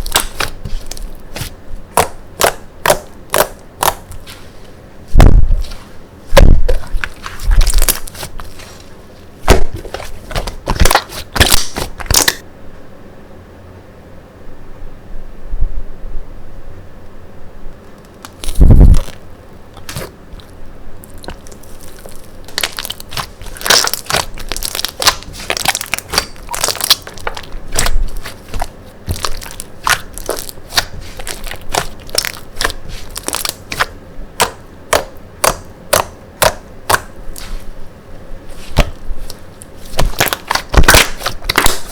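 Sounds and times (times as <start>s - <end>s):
slime crackling pops and clicks: 22.5s - 37.1s, 40.0s - 41.9s.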